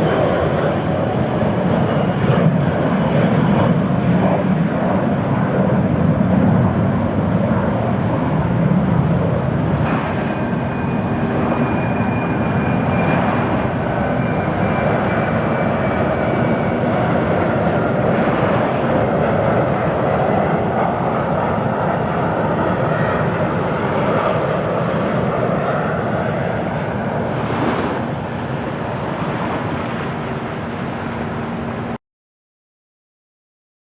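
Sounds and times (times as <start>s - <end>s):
jet engines running: 0.0s - 32.0s
thin high whine: 9.7s - 24.4s.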